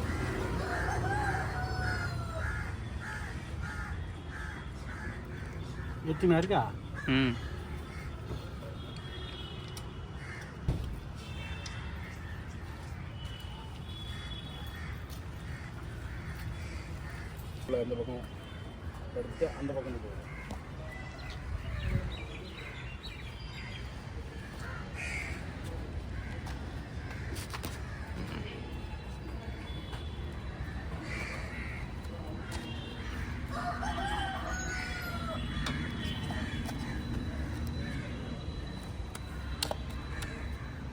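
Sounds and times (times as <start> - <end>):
crows cawing: 0.0 - 8.2, 10.2 - 10.6, 14.1 - 17.6, 19.2 - 21.4, 24.5 - 25.6, 31.0 - 37.0
rooster crowing: 0.1 - 2.7, 33.5 - 35.5.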